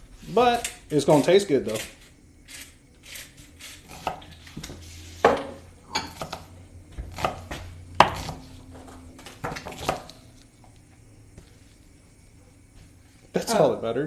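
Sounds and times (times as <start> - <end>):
knife chopping on cutting board: 3.9 - 4.3, 5.2 - 8.5, 9.4 - 10.2.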